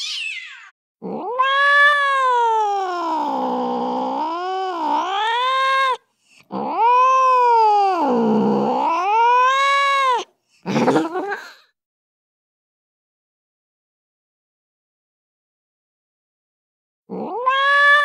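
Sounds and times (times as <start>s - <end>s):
cat yowling: 0.0s - 6.0s, 6.6s - 10.3s, 17.1s - 18.0s.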